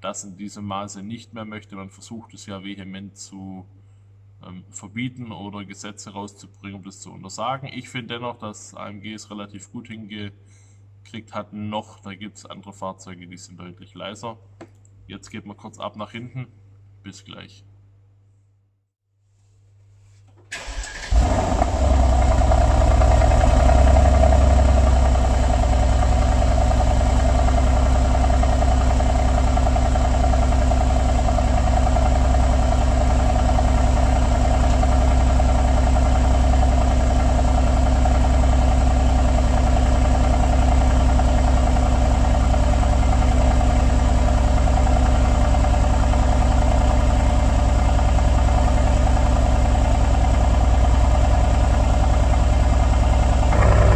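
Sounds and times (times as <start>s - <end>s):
car engine idling: 20.6s - 53.9s.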